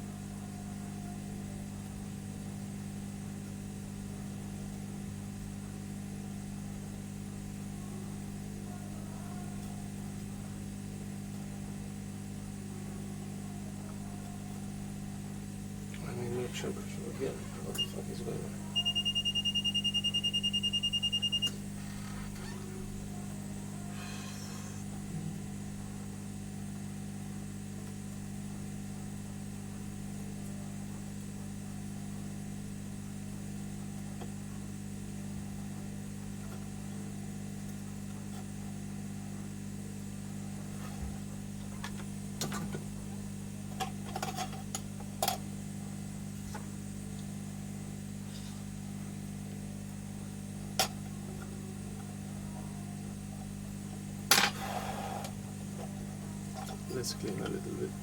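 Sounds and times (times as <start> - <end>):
workbench equipment humming: 0.0 - 58.0
high beeping tone: 18.8 - 21.6.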